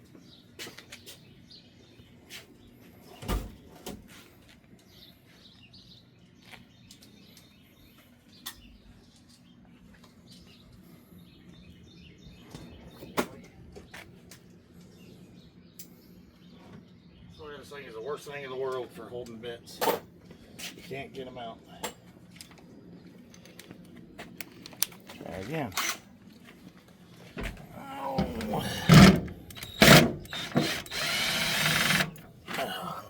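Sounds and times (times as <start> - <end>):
knocks and clicks of handling: 27.4 - 31.2.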